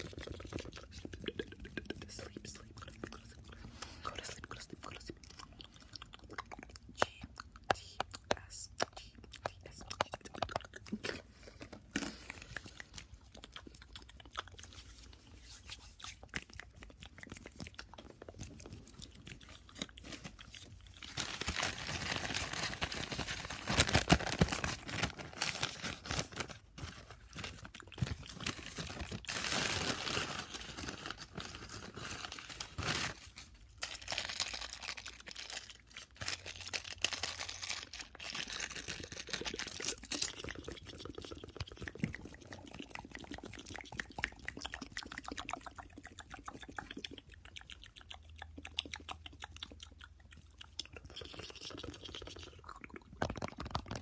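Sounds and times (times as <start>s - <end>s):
wet mouth clicks and smacks: 0.0s - 20.0s, 38.7s - 54.0s.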